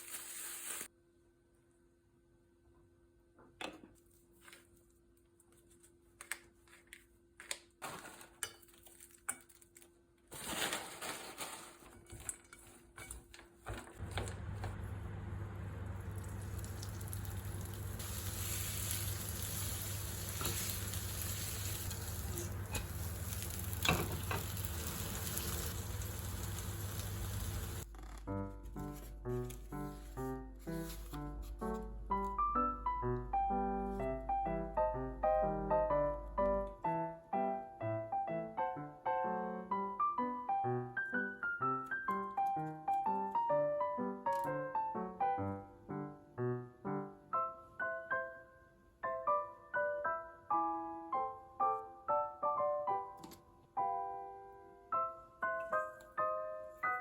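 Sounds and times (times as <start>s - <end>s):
food sizzling in a pan: 0.0s - 0.9s, 16.0s - 27.8s
dishes and utensils clinking: 23.8s - 24.6s.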